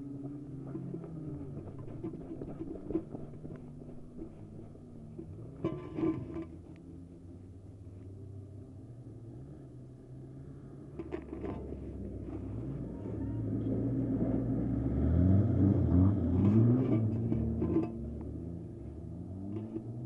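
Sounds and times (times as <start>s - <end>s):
race car engines passing: 0.0s - 20.0s
engines revving: 8.8s - 20.0s.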